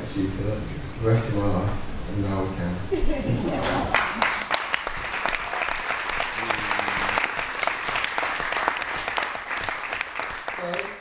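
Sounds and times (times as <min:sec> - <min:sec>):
murmur of voices: 0:00.0 - 0:04.2, 0:06.3 - 0:07.4
crowd clapping: 0:03.6 - 0:11.0.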